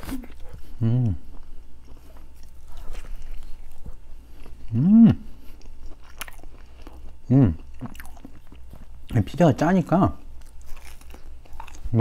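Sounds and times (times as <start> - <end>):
person humming: 0.0 - 1.3, 4.7 - 5.3
person chewing pizza: 0.0 - 9.4, 10.2 - 12.0.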